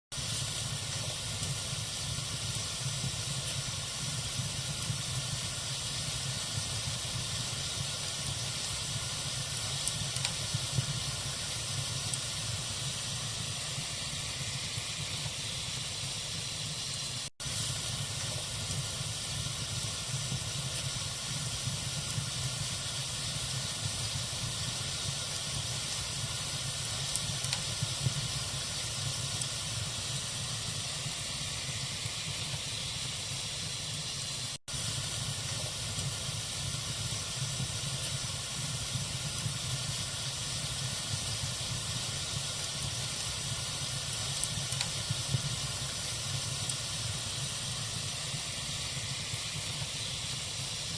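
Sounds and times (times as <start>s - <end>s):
fire crackles: 0.1s - 50.9s
fire hissing: 0.1s - 50.9s.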